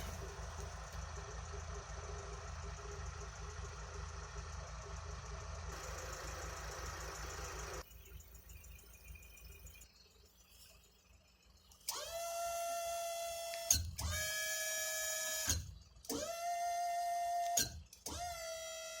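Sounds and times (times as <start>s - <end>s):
hydraulic pump motor whining: 0.0s - 4.2s.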